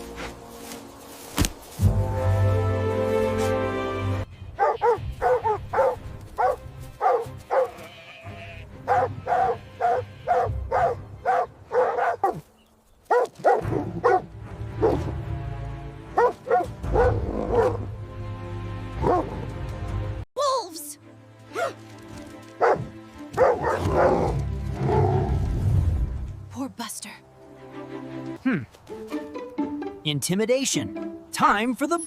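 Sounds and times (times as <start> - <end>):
dog barking: 4.6 - 7.8, 8.8 - 12.4, 13.1 - 15.1, 16.2 - 17.8, 19.0 - 19.3, 21.6 - 21.8, 22.6 - 24.3.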